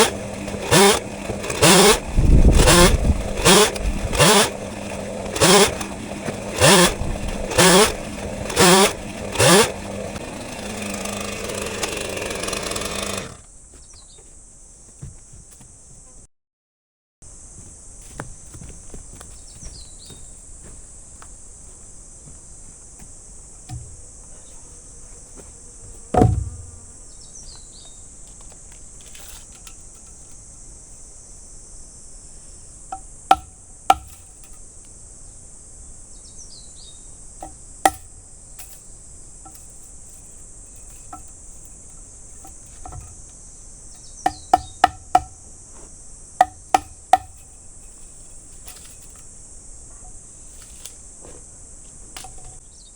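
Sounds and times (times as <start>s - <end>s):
insects droning: 0.0s - 16.3s, 17.2s - 52.9s
heavy thud: 26.1s - 26.9s
sharp knocks: 26.1s - 26.9s, 32.9s - 34.3s, 37.4s - 38.1s, 44.2s - 45.4s, 46.4s - 47.4s.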